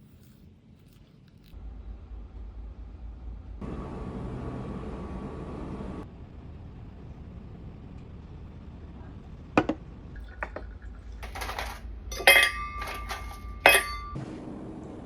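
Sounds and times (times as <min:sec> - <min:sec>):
spoon scraping crockery: 0:00.0 - 0:01.6, 0:11.2 - 0:14.2
crockery and spoon clinking: 0:11.2 - 0:14.2.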